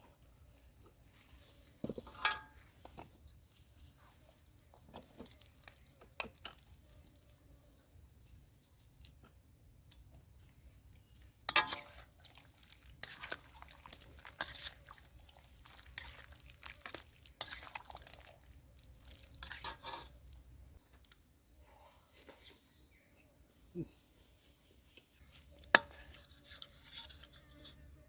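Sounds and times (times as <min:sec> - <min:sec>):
person chewing food: 0:11.8 - 0:21.2.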